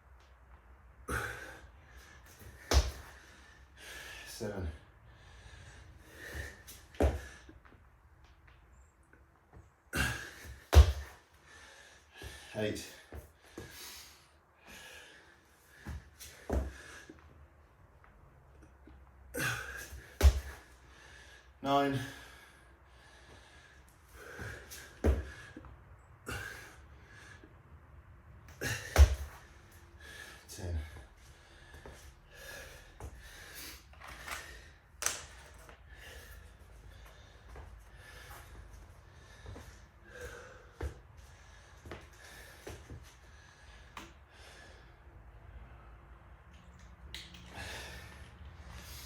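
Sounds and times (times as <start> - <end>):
person breathing hard: 1.1 - 7.6, 10.0 - 17.4, 19.3 - 27.8, 28.5 - 35.0, 35.7 - 46.0, 47.4 - 49.0
heavy thud: 2.7 - 3.1, 10.8 - 11.1, 20.2 - 20.6
body thudding on floor: 10.8 - 11.2, 20.2 - 20.6, 29.0 - 29.4.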